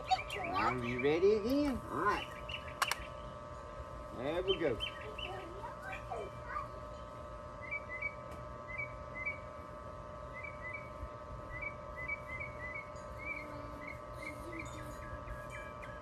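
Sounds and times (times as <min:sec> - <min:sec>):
small bird chirping: 0:00.0 - 0:03.4, 0:04.4 - 0:06.7
steady low hum: 0:00.0 - 0:16.0.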